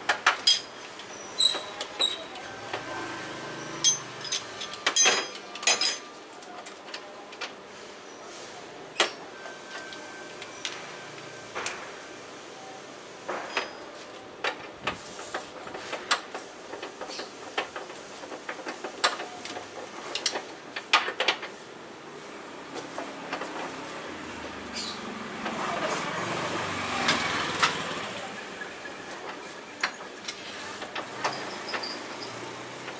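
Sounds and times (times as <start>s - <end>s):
metal tools clicking and clinking: 0.2s - 0.7s, 3.5s - 6.2s.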